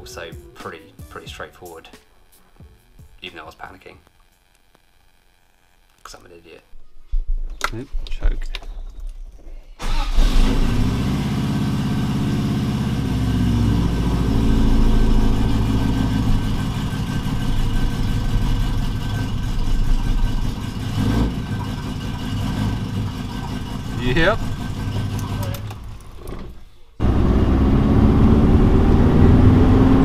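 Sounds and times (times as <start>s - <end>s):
car engine starting and idling: 9.8s - 30.0s.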